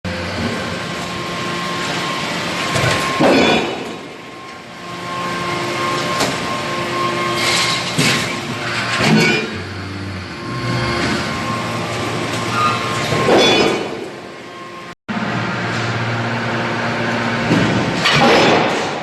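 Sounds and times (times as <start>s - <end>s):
forging machine hum: 0.1s - 19.0s
metal knocks and clanks: 2.6s - 4.2s, 7.4s - 9.6s, 12.2s - 14.2s, 17.4s - 19.0s
loud metallic clash: 2.7s - 4.2s, 17.5s - 19.0s.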